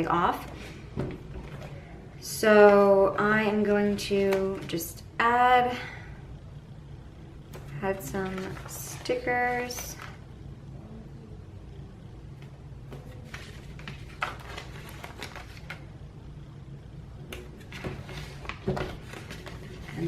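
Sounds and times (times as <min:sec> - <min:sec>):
low steady hum: 0:00.0 - 0:20.0
paper rustling: 0:07.5 - 0:10.2, 0:12.9 - 0:15.9, 0:17.6 - 0:20.0.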